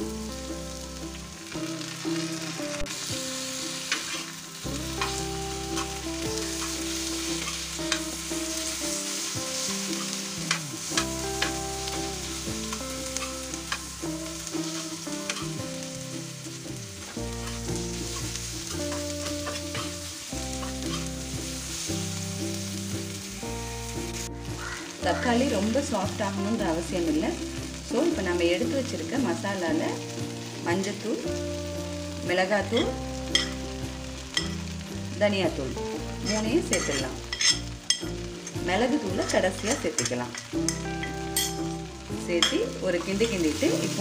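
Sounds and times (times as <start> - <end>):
vegetables sizzling in hot oil: 0.0 - 44.0
metal spatula scraping a pan: 2.9 - 22.7, 32.8 - 33.6, 36.2 - 41.7.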